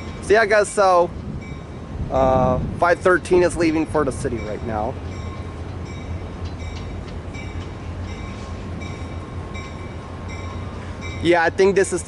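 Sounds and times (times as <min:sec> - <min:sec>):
diesel train rumbling: 0:00.0 - 0:12.0.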